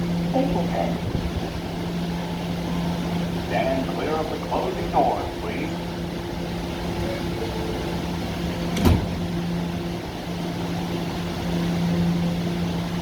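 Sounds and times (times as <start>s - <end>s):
subway car electrical hum: 0.0s - 13.0s
announcement over speaker: 3.4s - 5.9s
train doors closing thud: 8.5s - 9.5s.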